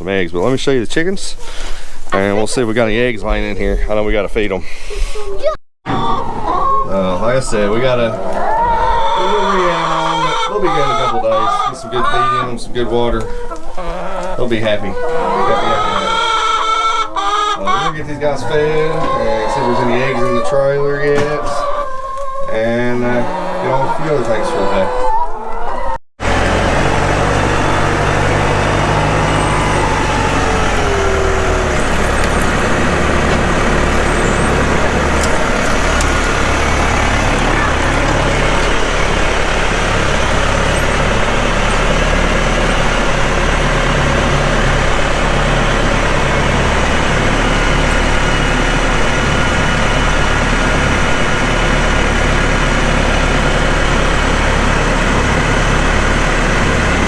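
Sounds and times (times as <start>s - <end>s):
falling whine: 26.2s - 57.0s
tractor engine running: 26.2s - 57.0s.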